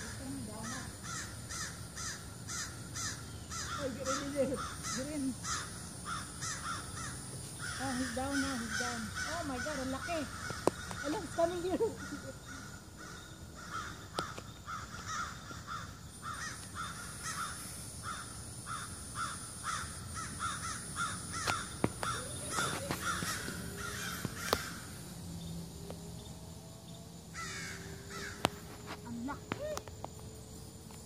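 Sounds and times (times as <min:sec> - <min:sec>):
birds giving harsh calls: 0:00.0 - 0:30.0.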